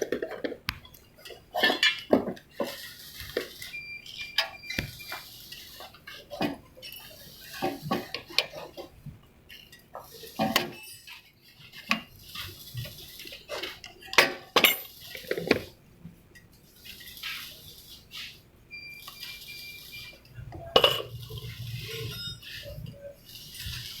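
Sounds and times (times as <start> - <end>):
metal tools clinking and clanking: 1.2 - 4.6, 5.5 - 8.9, 9.5 - 12.5, 13.2 - 15.6, 20.7 - 24.0.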